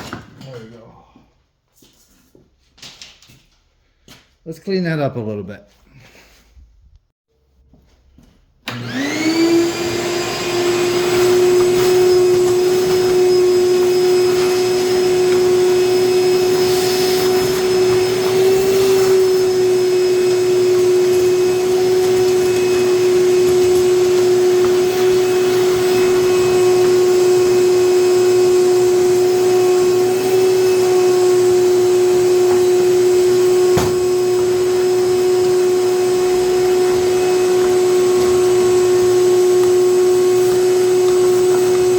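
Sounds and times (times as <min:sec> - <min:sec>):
electric motor and fan humming: 0:08.7 - 0:41.9.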